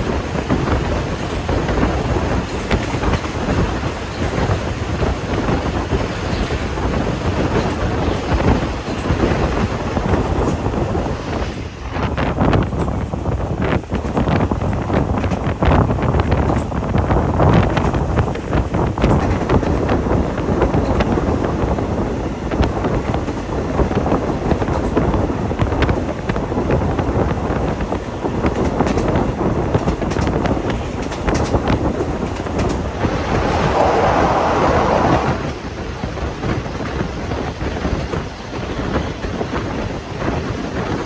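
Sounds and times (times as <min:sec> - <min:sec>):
train running on rails: 0:00.0 - 0:41.0
wind buffeting microphone: 0:00.0 - 0:41.0
train wheel clicks: 0:00.4 - 0:04.7, 0:06.0 - 0:10.7, 0:12.6 - 0:21.8, 0:22.6 - 0:33.0.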